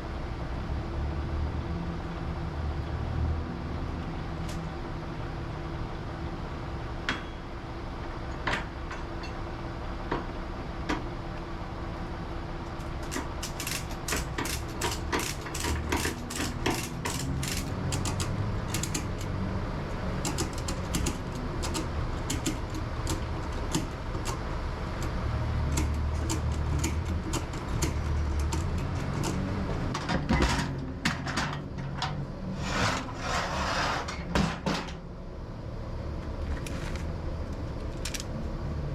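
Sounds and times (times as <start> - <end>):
ratchet rasping strokes: 12.9 - 19.3
ratchet strap clicking: 12.9 - 19.3, 20.2 - 24.4, 25.0 - 29.5, 37.9 - 38.3.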